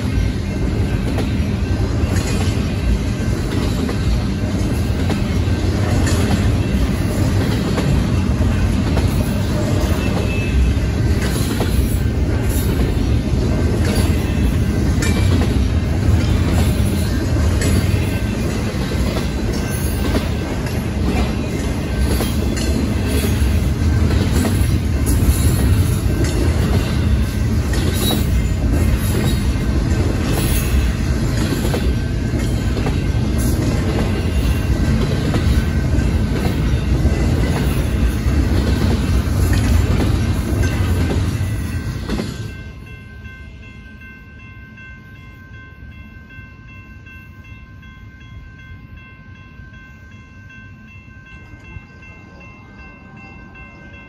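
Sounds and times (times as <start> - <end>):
train wheels clacking: 0.0 - 43.0
crossing signal bell ringing: 0.0 - 54.0
freight train rumbling past: 0.0 - 54.0.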